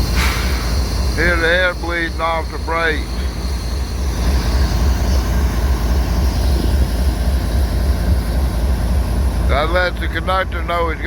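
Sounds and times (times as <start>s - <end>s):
compressed air hissing: 0.0s - 1.5s.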